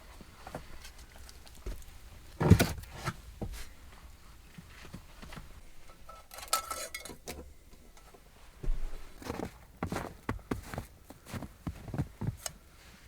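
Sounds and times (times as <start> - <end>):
clinking rustle of utensils: 5.9 - 7.5.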